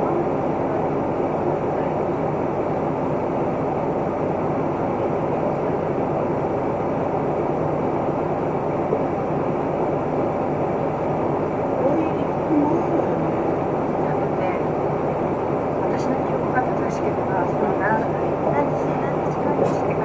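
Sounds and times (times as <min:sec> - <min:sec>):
bus diesel engine: 0:00.0 - 0:20.0
road noise: 0:09.7 - 0:20.0.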